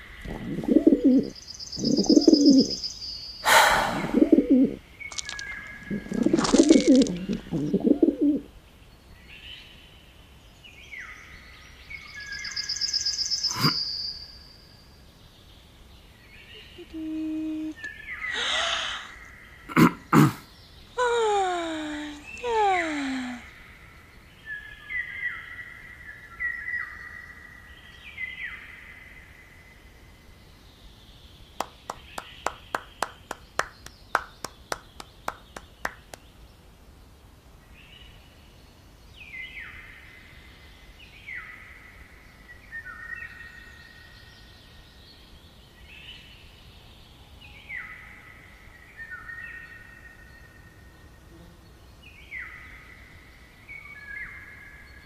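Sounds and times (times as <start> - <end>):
birdsong with falling notes: 0.2 - 3.0.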